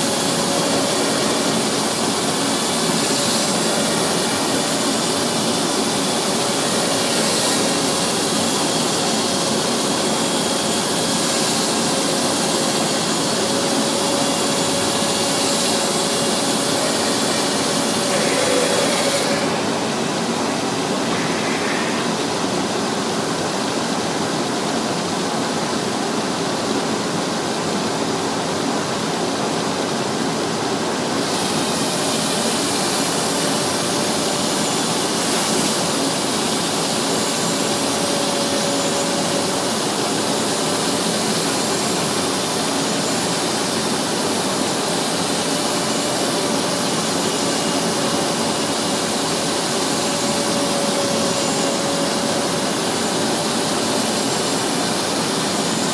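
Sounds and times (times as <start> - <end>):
sanding machine grinding: 0.0 - 20.0, 31.2 - 55.9.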